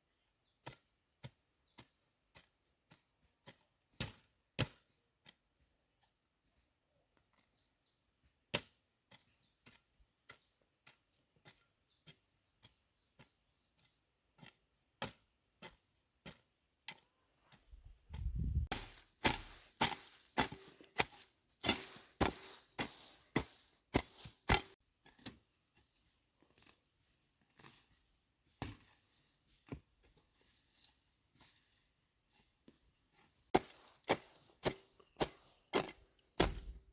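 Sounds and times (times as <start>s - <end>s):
dull thump: 36.4s - 36.9s.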